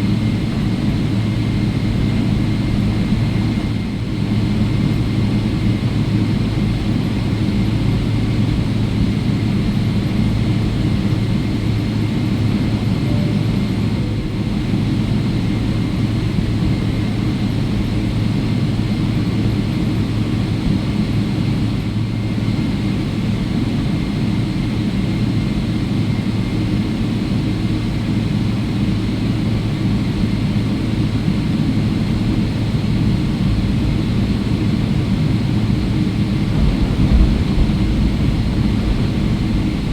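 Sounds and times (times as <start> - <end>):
faint jet engine whine: 0.0 - 39.9
jet engines low rumble: 0.0 - 39.9.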